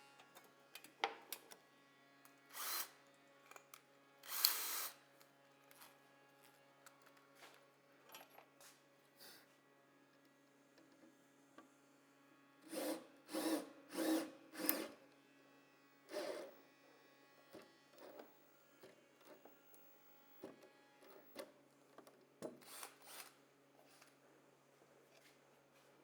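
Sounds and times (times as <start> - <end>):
power drill driving screws: 2.6 - 2.9, 4.3 - 5.0, 12.7 - 14.9, 22.6 - 23.4.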